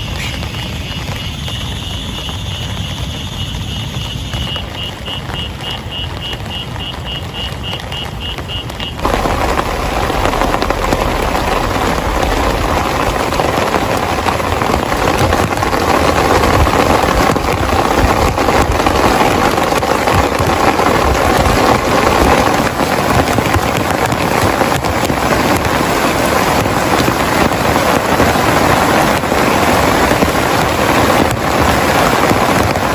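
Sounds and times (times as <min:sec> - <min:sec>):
heavy rain: 0:00.0 - 0:32.9
low rumble: 0:09.0 - 0:19.0.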